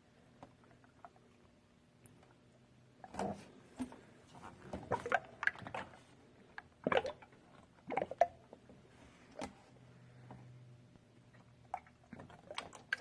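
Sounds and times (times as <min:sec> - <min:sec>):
liquid glugging and splashing: 0:04.6 - 0:09.6, 0:11.3 - 0:13.0.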